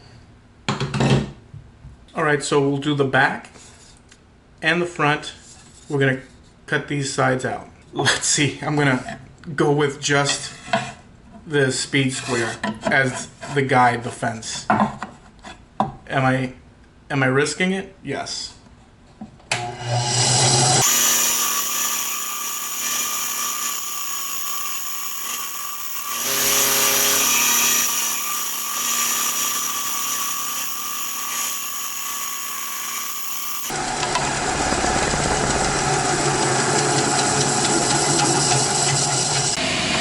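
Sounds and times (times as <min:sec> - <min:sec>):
bandsaw cutting wood: 0:19.5 - 0:39.6.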